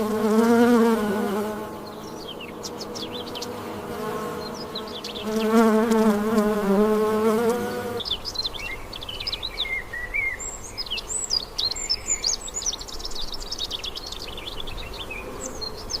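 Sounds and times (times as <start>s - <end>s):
insect buzzing: 0.0s - 8.0s
high bird chirping and twittering: 1.4s - 6.8s, 7.4s - 16.0s.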